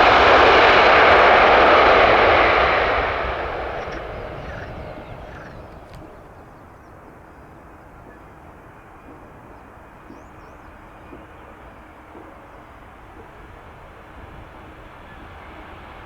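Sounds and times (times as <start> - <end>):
distant jet engines rumbling: 0.0 - 16.0
faint bird chirps: 3.8 - 8.3.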